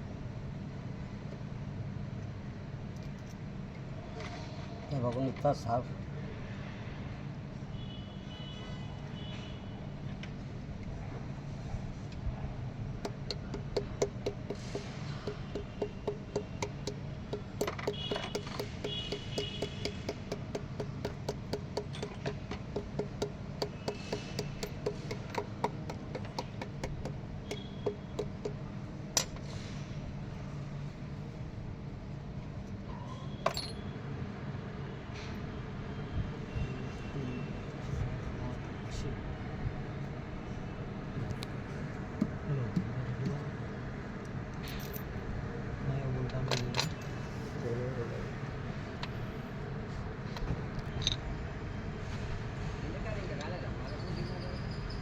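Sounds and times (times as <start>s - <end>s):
steady background noise: 0.0s - 55.0s
metal parts clinking: 33.4s - 33.8s, 44.6s - 45.1s, 46.5s - 47.2s, 50.9s - 51.2s.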